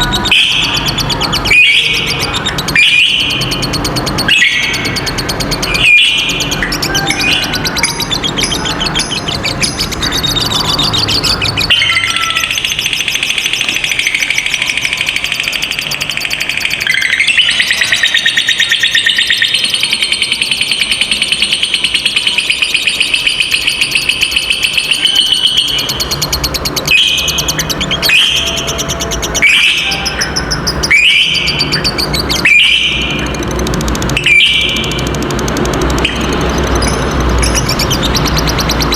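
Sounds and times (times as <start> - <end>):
lovebird chattering trill: 0.0 - 38.9
shrill bird calls: 0.0 - 38.9.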